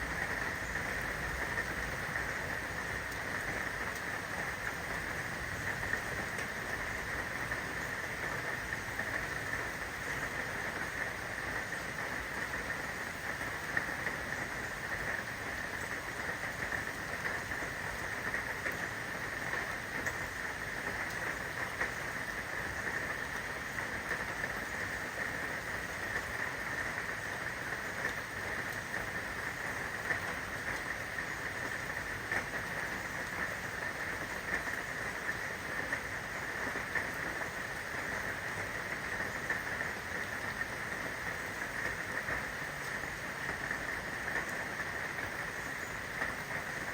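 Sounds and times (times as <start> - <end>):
rain falling: 0.0 - 46.9
raindrops: 0.0 - 46.9.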